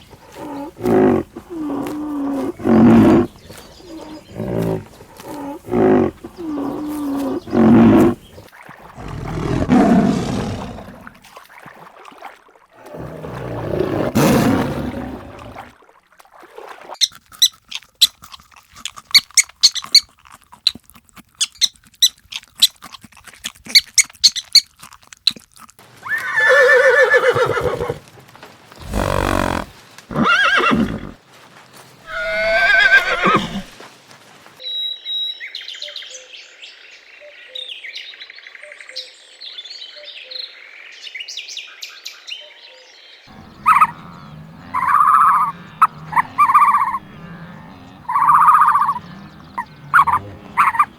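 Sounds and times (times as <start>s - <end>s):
horse whinnies: 0.0s - 3.3s, 3.9s - 8.2s, 26.0s - 28.0s, 28.8s - 31.2s, 32.1s - 33.8s, 43.3s - 50.9s
horse snort: 0.0s - 11.2s, 12.8s - 15.7s, 28.8s - 31.2s, 32.1s - 33.8s, 43.3s - 50.9s
short animal calls: 28.8s - 31.2s, 32.1s - 33.8s, 43.3s - 50.9s.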